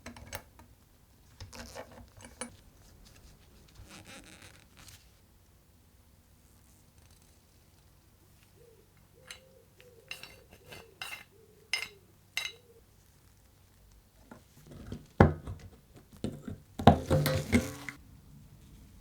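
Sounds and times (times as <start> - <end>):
small metal parts clinking: 9.2 - 12.6.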